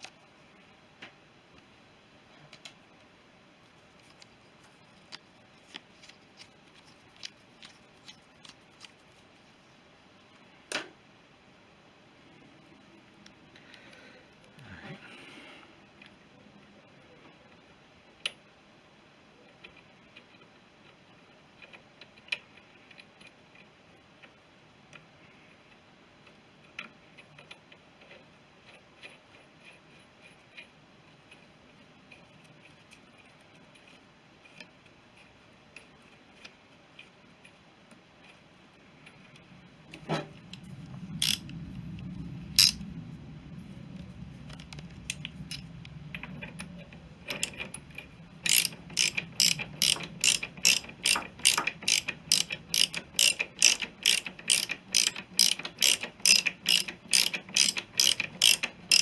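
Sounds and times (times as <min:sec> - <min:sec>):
ratchet wrench clicking: 0:41.2 - 0:41.5, 0:42.6 - 0:42.8, 0:47.3 - 0:59.0.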